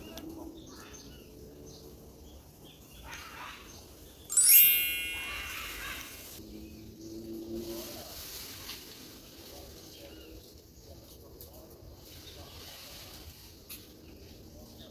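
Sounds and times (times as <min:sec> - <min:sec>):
bright chime ring: 0:04.3 - 0:06.4.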